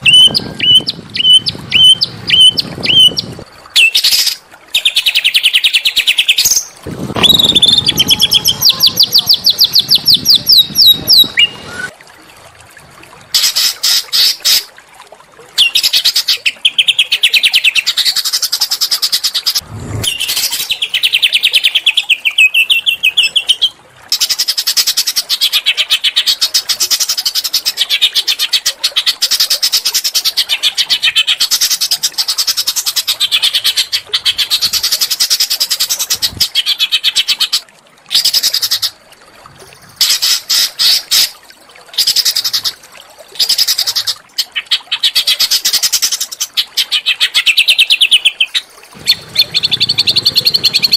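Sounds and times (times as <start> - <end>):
songbirds trilling: 0.0 - 11.9, 46.7 - 50.9
low rumble: 19.6 - 20.5.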